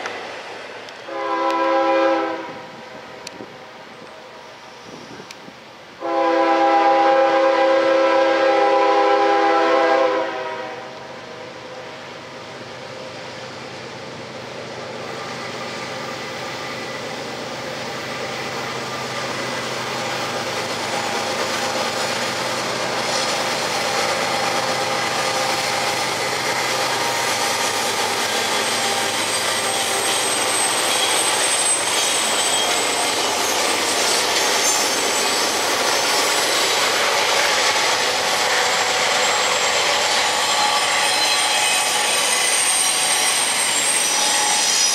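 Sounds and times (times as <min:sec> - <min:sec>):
train rumbling on rails: 0:00.0 - 0:44.9
locomotive horn blast: 0:01.1 - 0:03.4, 0:06.0 - 0:11.0.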